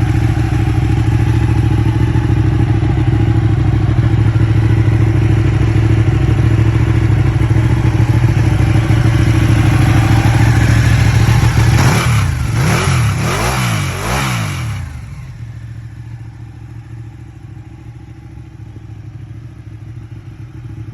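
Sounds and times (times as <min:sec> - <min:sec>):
motorcycle engine revving: 0:00.0 - 0:16.4.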